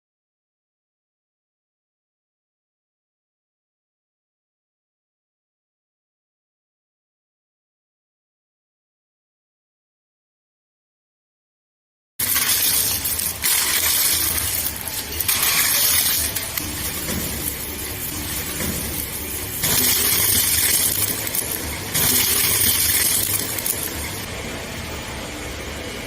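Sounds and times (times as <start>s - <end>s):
shredder crunching and clinking: 12.2s - 24.3s
shredder motor hum: 12.2s - 24.5s.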